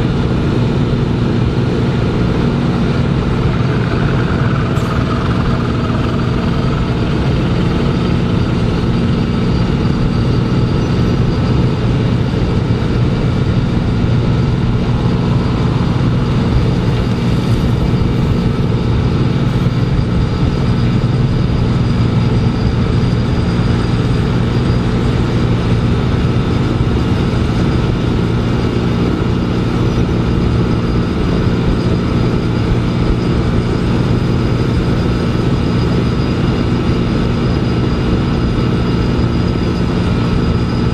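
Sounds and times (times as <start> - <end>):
heavy diesel machinery running: 0.0 - 40.9.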